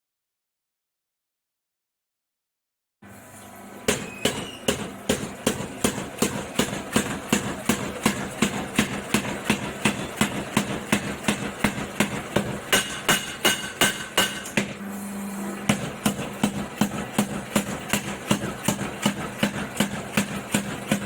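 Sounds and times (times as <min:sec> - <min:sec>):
power hammer ram striking: 0:03.9 - 0:14.8.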